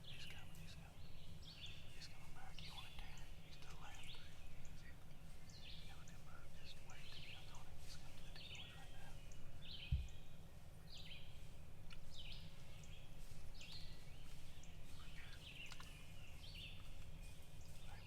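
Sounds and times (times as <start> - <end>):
songbirds singing: 0.0 - 18.0
steady low rumble: 0.0 - 18.0
sharp thump: 9.9 - 10.1.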